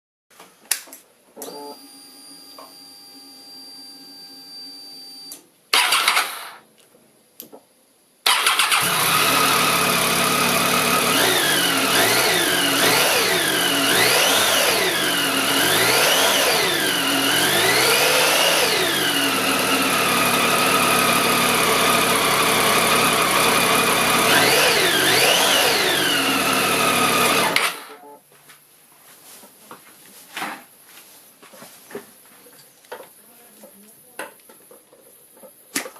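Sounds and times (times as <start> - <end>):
starter whine: 5.3 - 6.6, 8.3 - 28.0
motorcycle engine starting and revving: 5.8 - 6.6, 8.3 - 28.0.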